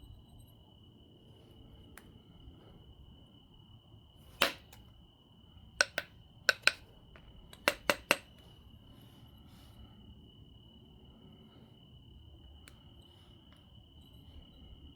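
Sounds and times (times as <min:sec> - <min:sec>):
cricket chirping: 0:00.0 - 0:14.9
stone knapping clicks: 0:04.4 - 0:04.8, 0:05.8 - 0:06.8, 0:07.5 - 0:08.3.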